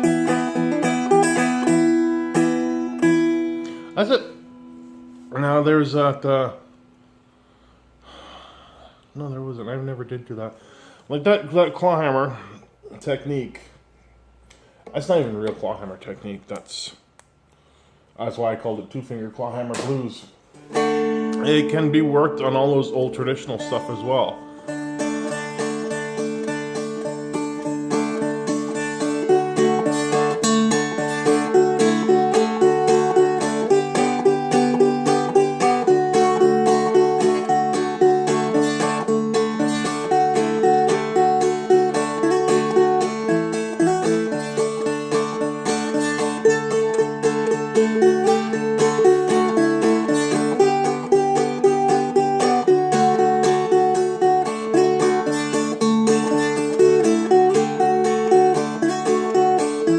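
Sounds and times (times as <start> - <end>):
dulcimer melody with drone strings: 0.0 - 4.0, 20.6 - 59.9.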